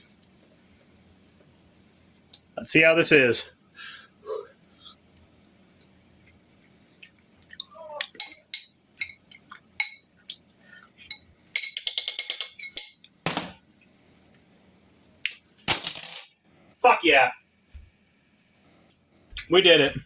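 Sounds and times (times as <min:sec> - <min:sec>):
cutlery clinking on a dish: 0:07.5 - 0:10.1, 0:11.0 - 0:13.4.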